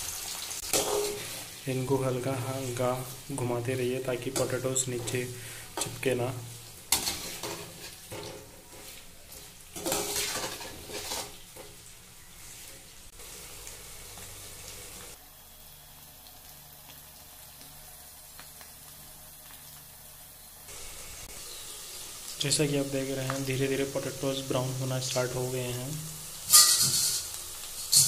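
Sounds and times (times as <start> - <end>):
potatoes sizzling in oil: 0.0 - 28.0
spatula scraping pan: 6.9 - 11.8, 26.5 - 28.0.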